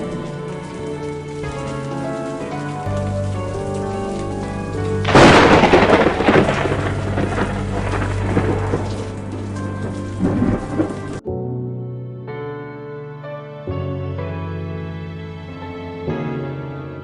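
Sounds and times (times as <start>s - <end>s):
steady rain: 0.0s - 11.2s
thunder rumbling: 0.0s - 11.2s
soft sustained music: 0.0s - 17.0s.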